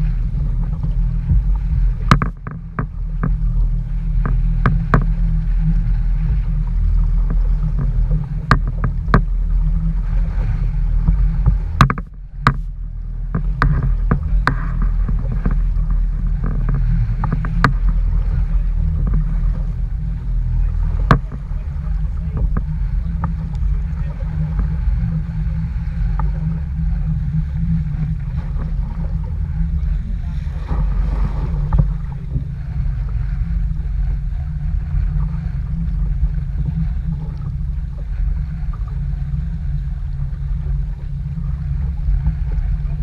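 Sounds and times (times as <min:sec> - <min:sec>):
strong wind buffeting microphone: 0:00.0 - 0:43.0
sharp knocks and taps: 0:02.0 - 0:03.4, 0:11.4 - 0:12.6, 0:21.0 - 0:21.4.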